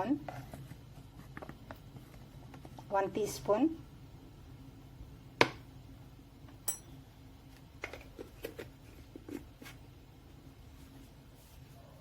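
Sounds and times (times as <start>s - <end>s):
metallic clink: 6.6s - 6.9s.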